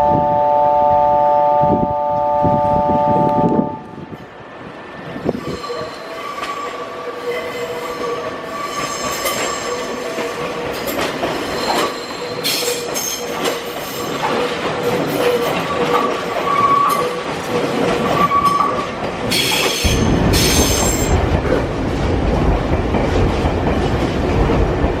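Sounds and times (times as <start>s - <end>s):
train wheels squealing on rails: 4.9s - 21.1s
wheels clicking over rail joints: 5.3s - 19.9s.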